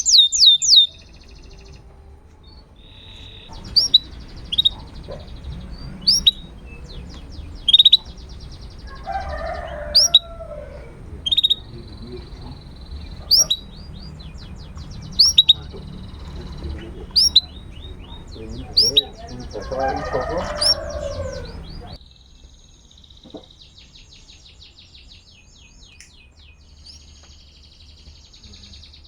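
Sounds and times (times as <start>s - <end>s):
canary chirping: 0.0s - 22.0s
low rough bird call: 0.0s - 22.0s
rapid bird trills: 0.0s - 22.0s.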